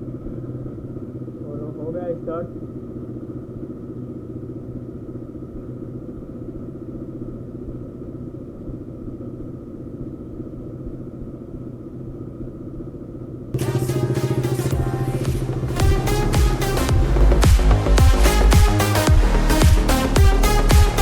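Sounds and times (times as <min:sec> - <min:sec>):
motorcycle engine idling: 0:13.6 - 0:21.0.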